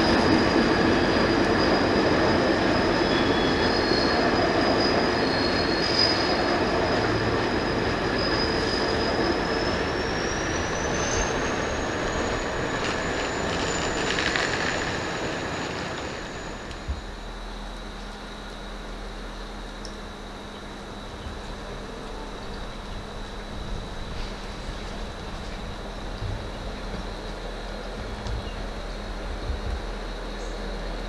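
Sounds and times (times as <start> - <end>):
high wheel squeal: 0.0 - 17.3
train rumbling past: 0.0 - 31.0.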